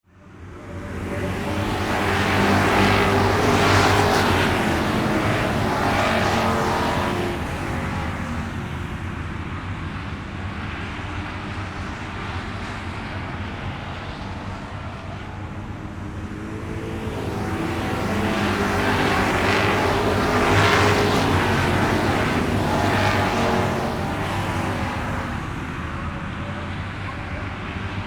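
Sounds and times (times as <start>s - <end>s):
vehicle engine droning: 0.6s - 9.3s, 15.6s - 26.6s.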